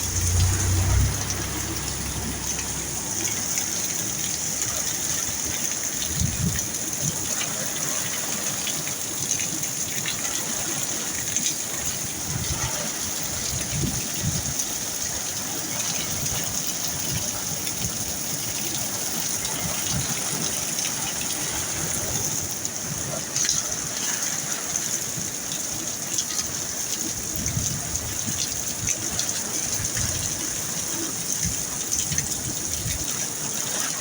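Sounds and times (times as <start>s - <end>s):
raindrop ticks: 0.0s - 7.4s
heavy rain pouring: 0.0s - 34.0s.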